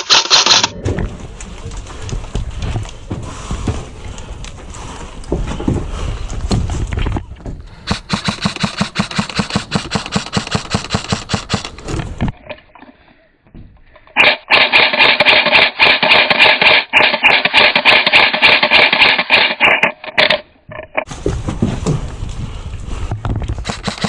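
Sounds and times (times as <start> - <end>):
airsoft gun firing full auto: 0.0 - 0.7, 7.9 - 11.7, 14.2 - 20.4, 23.6 - 24.0
running footsteps: 0.5 - 11.8.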